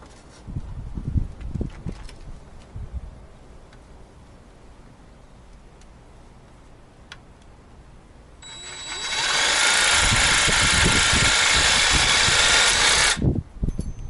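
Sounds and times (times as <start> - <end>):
jigsaw sawing into wood: 8.4 - 13.2.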